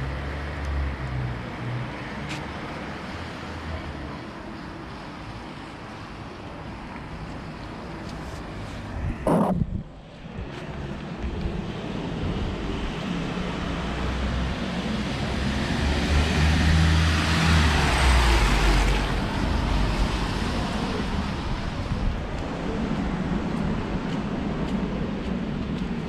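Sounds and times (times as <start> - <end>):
vehicle passing on wet road: 11.7 - 21.8.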